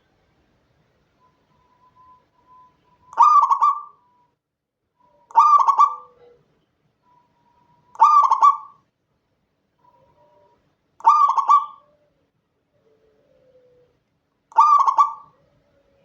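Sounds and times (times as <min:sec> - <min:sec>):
dove cooing: 0:03.0 - 0:04.2, 0:05.0 - 0:06.6, 0:07.2 - 0:08.8, 0:09.8 - 0:16.0.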